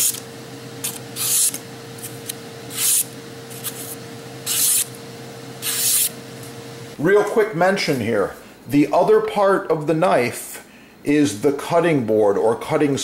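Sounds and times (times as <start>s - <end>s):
faint steady hum: 0.0s - 13.0s
knife slicing through paper: 0.8s - 4.9s.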